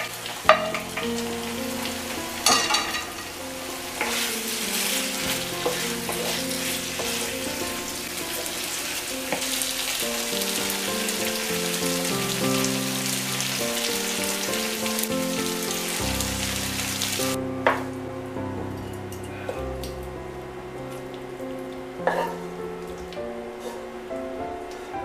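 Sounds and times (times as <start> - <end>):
chicken sizzling in a frying pan: 0.0 - 17.9
background music: 0.0 - 25.0.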